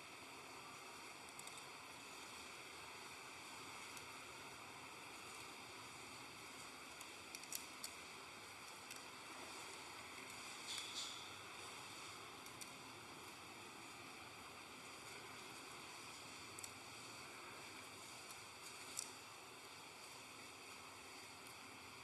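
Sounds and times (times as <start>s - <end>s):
steady hiss: 0.0s - 22.0s
faint clicks: 1.2s - 1.7s, 7.0s - 8.0s.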